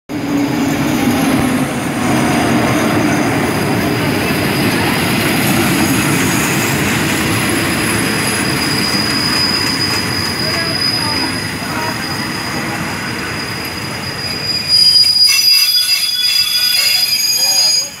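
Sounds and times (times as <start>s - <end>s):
train wheels on rails: 0.1s - 18.0s
high wheel squeal: 7.8s - 18.0s.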